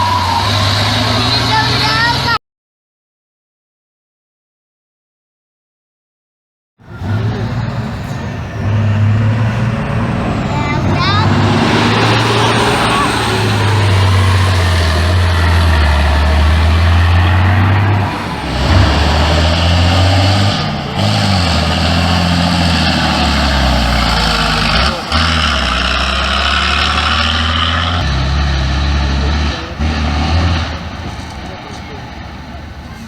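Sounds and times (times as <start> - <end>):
truck diesel engine under load: 0.0 - 2.4, 6.8 - 33.0.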